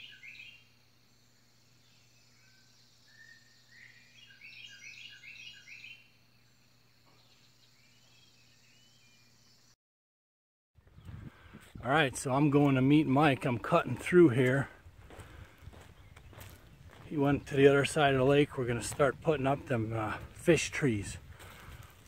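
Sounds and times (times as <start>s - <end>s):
faint steady hum: 0.0s - 9.8s
songbird chirping: 0.0s - 9.8s, 10.8s - 22.0s.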